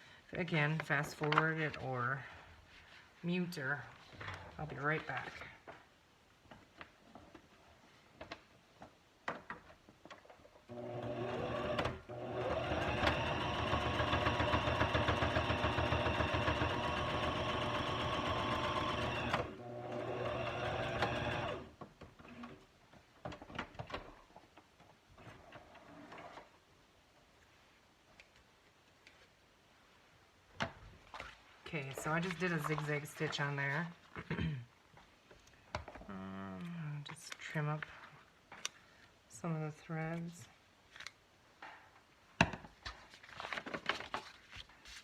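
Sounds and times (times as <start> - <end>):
sewing machine stitching: 10.7 - 22.6.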